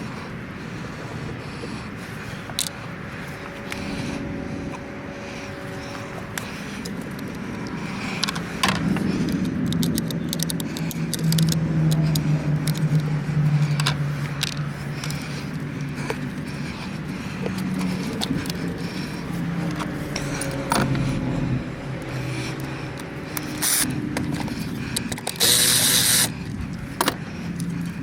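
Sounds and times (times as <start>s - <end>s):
car engine humming: 0.0s - 28.0s
sharp metallic clicks: 5.6s - 27.9s.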